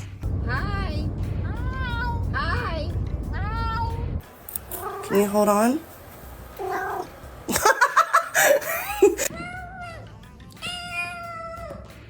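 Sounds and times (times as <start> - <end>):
background music: 0.0 - 5.3, 7.2 - 12.0
cat meowing: 6.6 - 7.1, 9.3 - 11.9.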